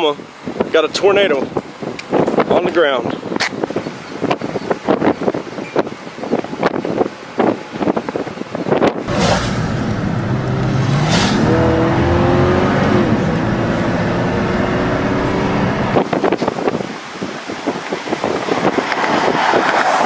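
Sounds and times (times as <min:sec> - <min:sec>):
loud rushing noise: 0:09.0 - 0:16.8
car engine accelerating: 0:09.1 - 0:16.0.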